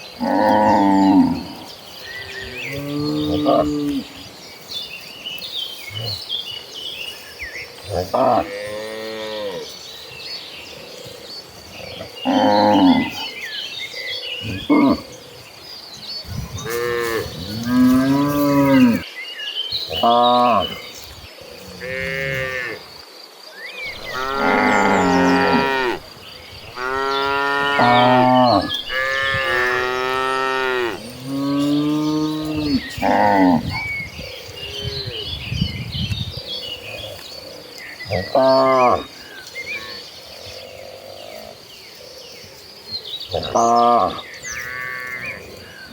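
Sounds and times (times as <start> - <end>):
cattle mooing: 23.9 - 26.1, 26.7 - 33.7.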